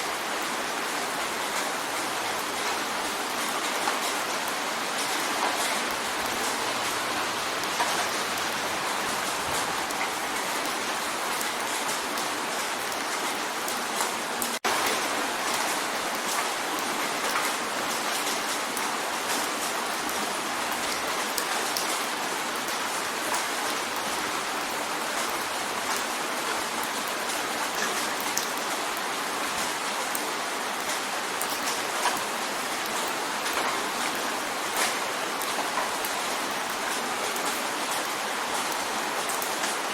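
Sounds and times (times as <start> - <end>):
rain drumming on window: 0.0 - 39.9.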